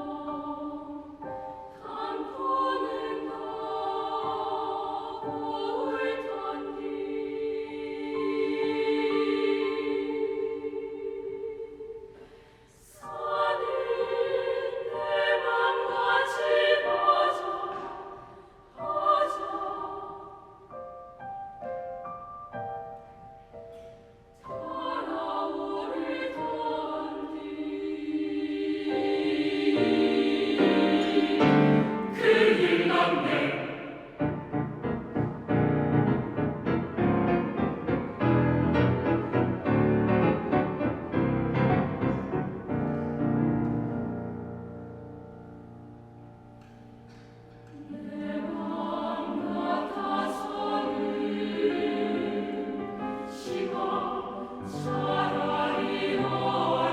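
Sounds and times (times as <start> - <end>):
choir singing: 0.0 - 21.8, 22.6 - 45.8, 46.6 - 56.9
piano accompaniment: 29.0 - 33.4, 34.1 - 47.6.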